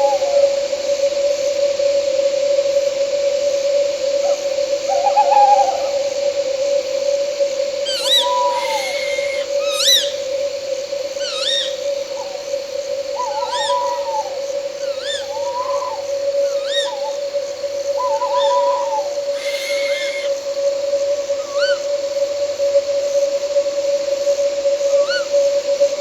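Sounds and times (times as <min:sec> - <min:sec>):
droning insect tone: 0:00.0 - 0:26.0
owl whistled calls: 0:07.8 - 0:10.4, 0:11.2 - 0:12.5, 0:13.1 - 0:20.5.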